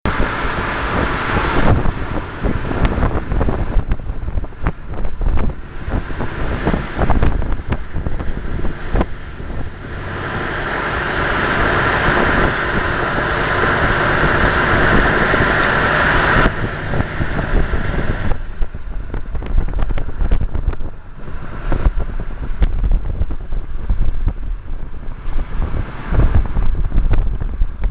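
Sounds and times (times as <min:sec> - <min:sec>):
road and wind noise hiss: 0:00.1 - 0:27.9.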